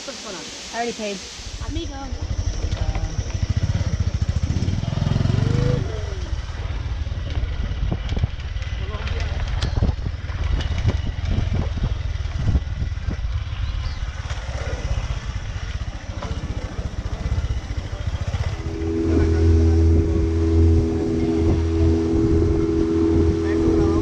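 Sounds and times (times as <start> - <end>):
vehicle engine rumbling: 1.2 - 24.0
wind on microphone: 1.4 - 8.8, 9.4 - 24.0
multi-pitched drone: 15.8 - 24.0.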